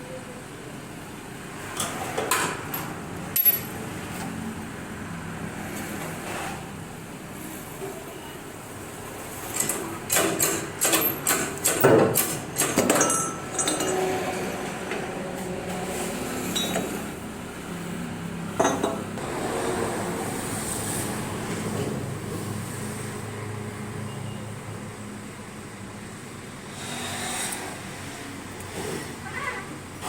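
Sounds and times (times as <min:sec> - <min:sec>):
hammer striking metal: 0:10.1 - 0:14.2.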